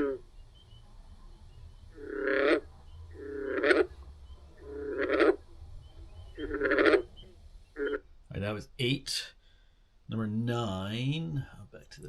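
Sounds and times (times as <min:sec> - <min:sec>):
frogs croaking: 0:00.0 - 0:08.4.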